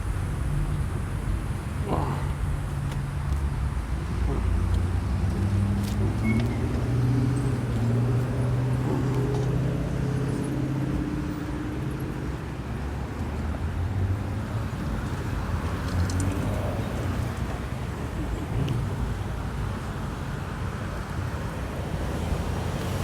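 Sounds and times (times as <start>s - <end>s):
street traffic noise: 0.0s - 23.0s.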